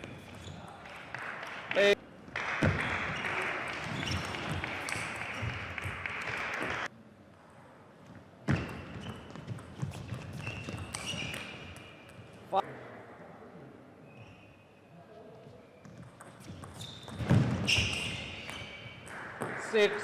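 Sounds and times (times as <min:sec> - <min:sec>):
crowd cheering and clapping: 0:02.4 - 0:06.9.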